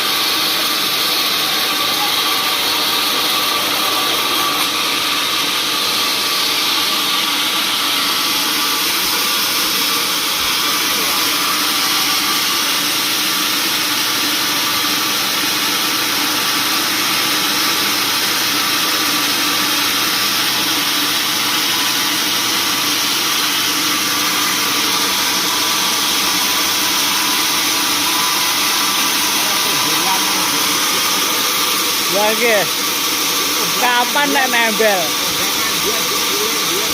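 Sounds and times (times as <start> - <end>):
sawmill machinery drone: 0.0 - 36.9.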